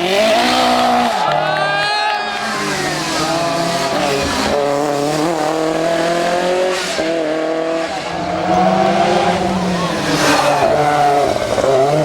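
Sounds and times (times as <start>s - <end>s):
rally car engine running hard: 2.5s - 12.0s.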